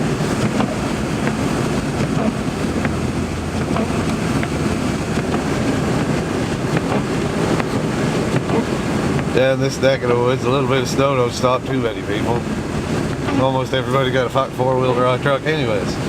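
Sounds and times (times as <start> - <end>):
car engine hum inside cabin: 0.0 - 16.0
road rushing noise: 0.0 - 16.0.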